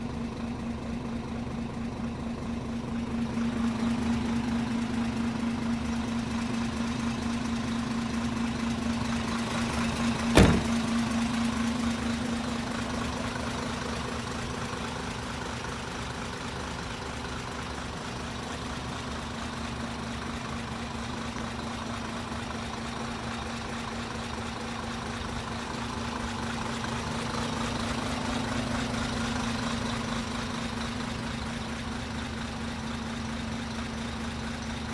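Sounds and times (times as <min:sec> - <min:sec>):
truck engine idling: 0:00.0 - 0:34.9
sharp knock: 0:10.4 - 0:10.8.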